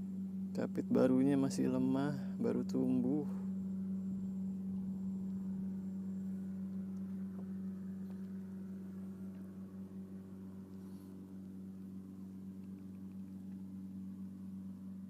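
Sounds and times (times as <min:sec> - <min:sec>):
low mechanical hum: 0:00.0 - 0:15.0
faint ticks: 0:06.7 - 0:08.5, 0:09.2 - 0:09.6, 0:10.6 - 0:14.4.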